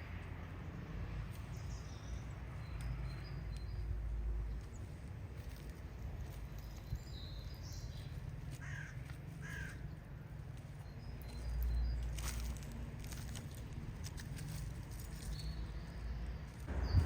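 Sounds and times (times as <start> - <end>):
bird calling: 8.6 - 9.9
steady low rumble: 16.6 - 17.0.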